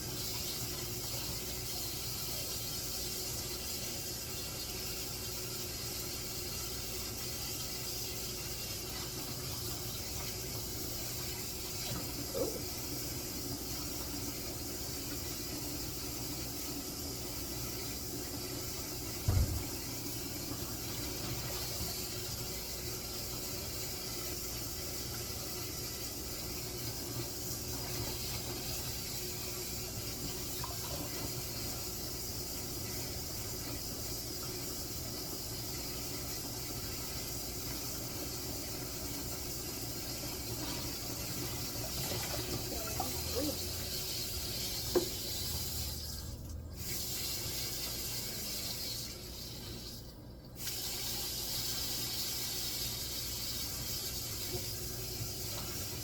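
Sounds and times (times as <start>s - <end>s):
tap water running into sink: 0.0s - 56.0s
low thump: 19.3s - 19.7s.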